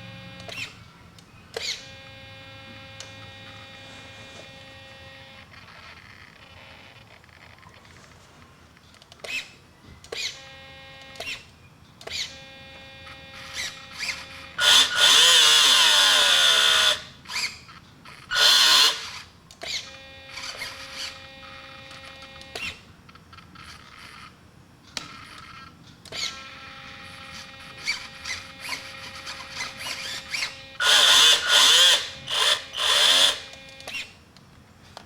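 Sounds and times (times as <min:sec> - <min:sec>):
servo motors whining: 0:12.0 - 0:22.7, 0:25.2 - 0:34.2
electric motor spinning up: 0:12.6 - 0:17.6, 0:18.3 - 0:19.2, 0:26.2 - 0:33.5.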